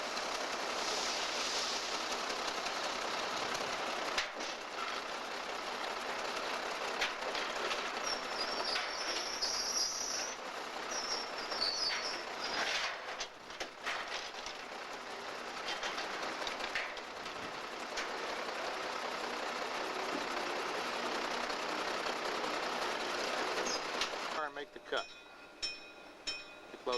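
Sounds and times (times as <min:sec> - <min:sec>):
freight cars rolling on track: 0:00.0 - 0:26.9
clicks and clanks: 0:04.1 - 0:05.1, 0:06.9 - 0:10.4, 0:11.2 - 0:14.7, 0:15.6 - 0:18.2
high-pitched wheel squeal: 0:07.9 - 0:12.7, 0:23.6 - 0:23.9.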